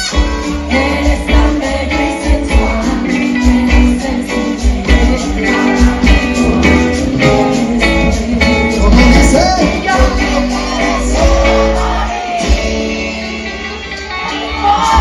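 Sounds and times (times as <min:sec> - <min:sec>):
live band music: 0:00.0 - 0:15.0
person singing: 0:00.0 - 0:15.0
heavy bass line: 0:02.5 - 0:12.8.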